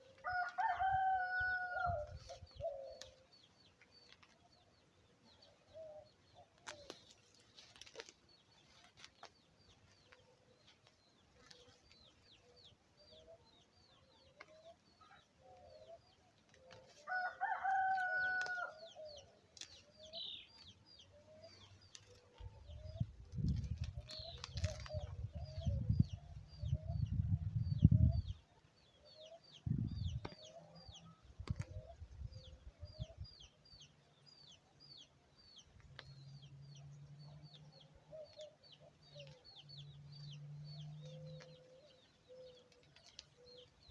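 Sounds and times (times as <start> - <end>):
rooster crowing: 0.2 - 2.1, 17.1 - 18.8
small birds chirping: 1.8 - 43.9.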